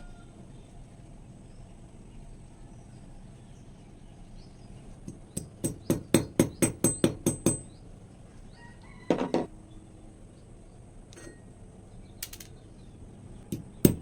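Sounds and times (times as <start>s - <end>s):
hand tool knocking hard workpiece: 5.1s - 7.7s, 13.5s - 14.0s.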